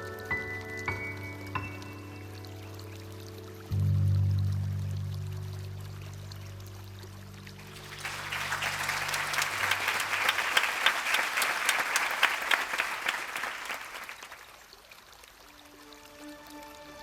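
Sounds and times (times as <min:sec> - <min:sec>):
low sustained musical note: 0:02.1 - 0:09.2
audience applauding: 0:07.6 - 0:14.7.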